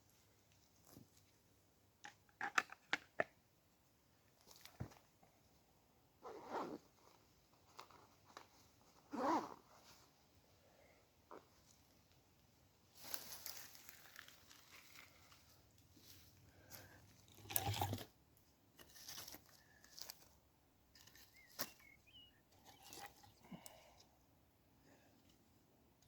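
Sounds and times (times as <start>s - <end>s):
kindling crinkling and tearing: 13.0s - 18.1s.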